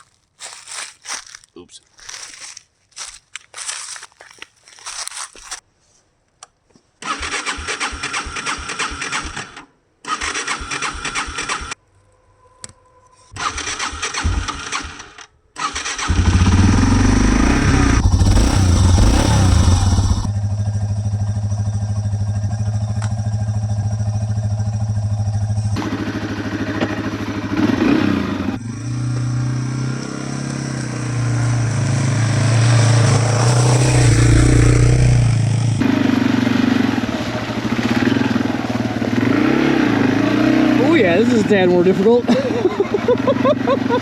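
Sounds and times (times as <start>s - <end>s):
electric starter cranking: 7.0s - 11.8s, 13.4s - 20.3s
motorcycle engine idling: 16.0s - 27.7s, 28.3s - 40.6s.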